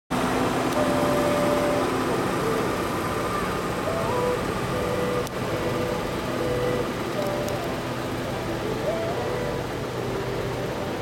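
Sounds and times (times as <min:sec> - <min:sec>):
tractor engine running: 0:00.1 - 0:11.0.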